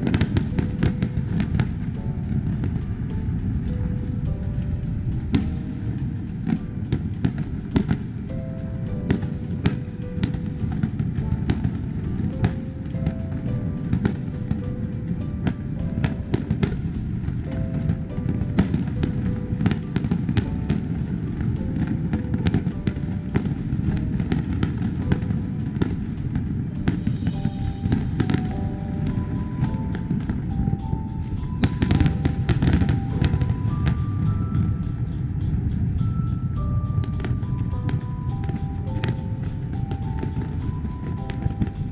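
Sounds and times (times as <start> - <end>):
low rumble of fireworks: 0.0 - 41.9
music with held notes: 0.0 - 41.9
firework shells bursting: 18.6 - 41.9.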